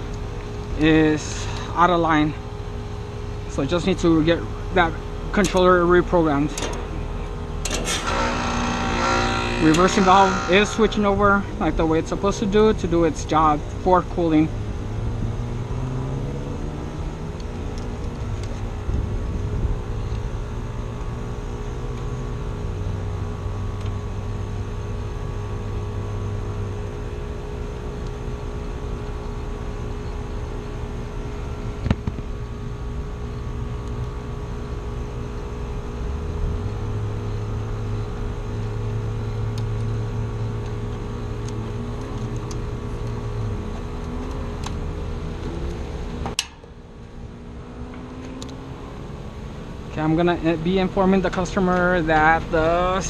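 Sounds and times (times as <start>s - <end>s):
compressor and fan hum: 0.0s - 53.0s.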